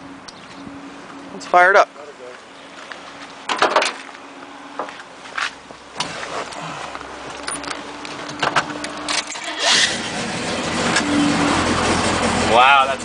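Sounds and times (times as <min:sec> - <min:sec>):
vehicle engine starting and running: 0:05.7 - 0:13.0.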